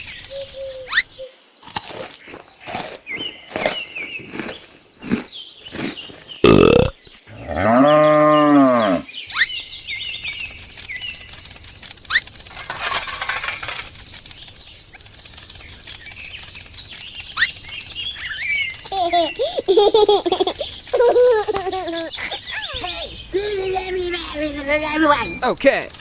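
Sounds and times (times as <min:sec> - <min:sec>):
cow mooing: 0:06.5 - 0:09.0
high chirps: 0:09.3 - 0:26.0.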